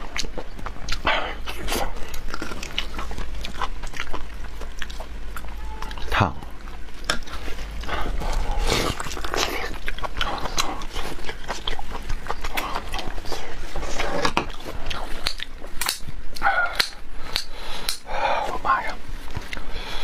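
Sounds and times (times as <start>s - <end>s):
chewing and biting: 0.0s - 18.1s, 19.2s - 19.8s
wet mouth clicks and smacks: 15.2s - 18.0s.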